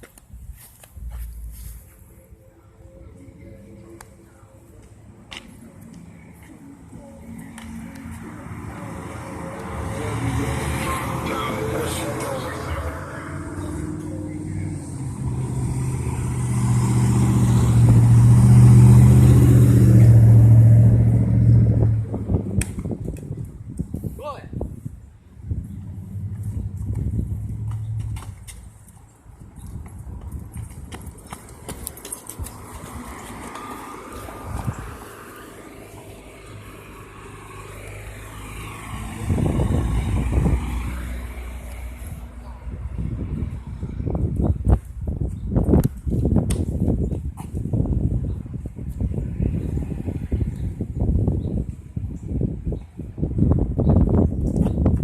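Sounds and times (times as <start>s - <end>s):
vehicle passing by: 5.7s - 23.1s, 25.3s - 28.8s, 31.3s - 45.1s.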